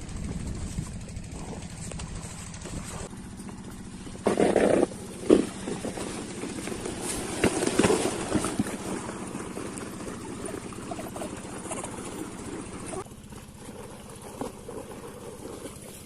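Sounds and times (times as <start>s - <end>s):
diesel engine chugging: 0.0s - 16.0s.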